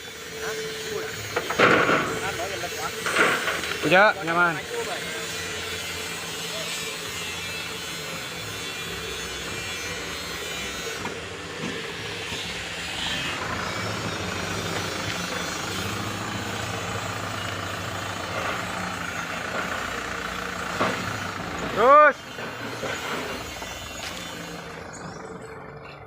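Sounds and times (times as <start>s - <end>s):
diesel truck engine under load: 0.0s - 26.0s.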